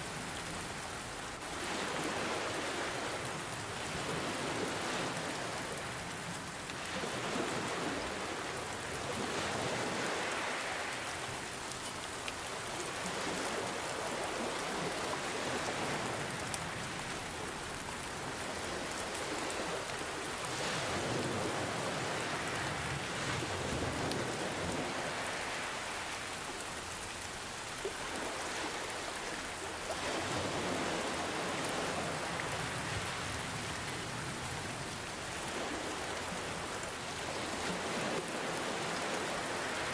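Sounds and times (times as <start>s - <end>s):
ocean waves washing in: 0.0s - 11.7s, 12.6s - 39.9s
steady rain: 0.0s - 39.9s.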